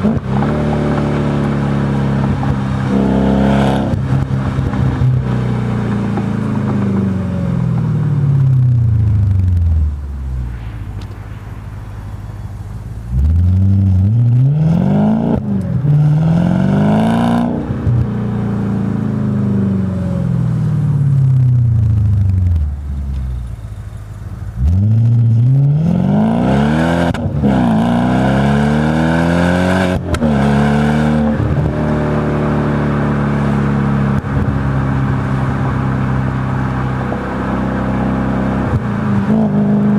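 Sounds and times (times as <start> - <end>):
car engine revving through gears: 0.0 - 7.4, 13.1 - 18.2, 24.6 - 39.9.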